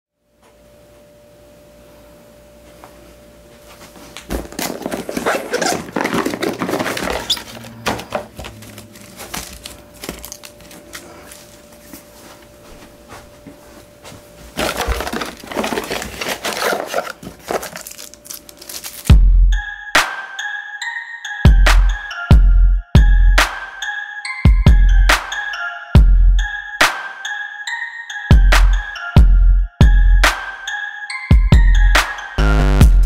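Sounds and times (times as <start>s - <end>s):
cardboard and packaging crinkling: 4.2s - 12.4s, 14.5s - 19.1s.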